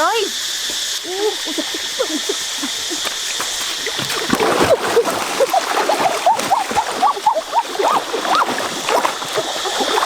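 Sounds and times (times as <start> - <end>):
steady high hiss: 0.0 - 4.3
water splashing: 0.7 - 10.0
short pitched calls: 5.5 - 8.7.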